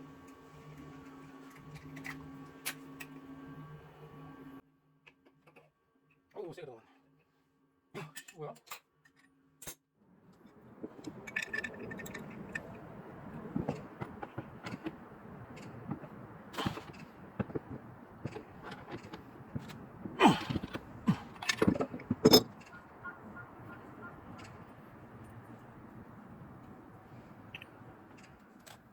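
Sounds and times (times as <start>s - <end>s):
metal tools clinking and knocking: 10.8s - 22.9s.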